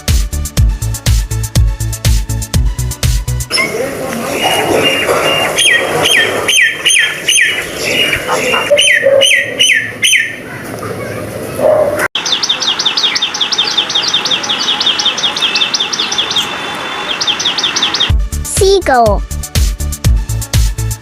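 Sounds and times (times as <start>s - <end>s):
bird falling call: 3.5s - 10.4s
bird fast high chirps: 4.4s - 10.4s, 12.2s - 18.1s.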